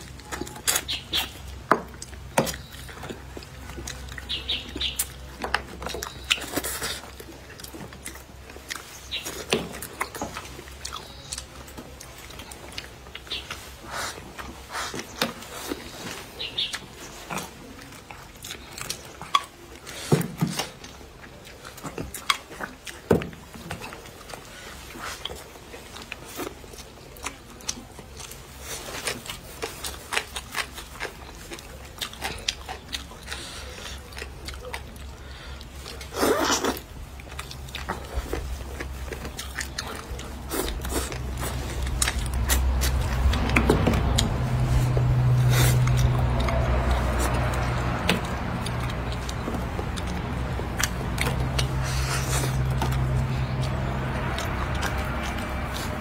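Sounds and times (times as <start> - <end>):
close chewing and biting food: 0.0 - 56.0
low vehicle rumble: 23.4 - 56.0.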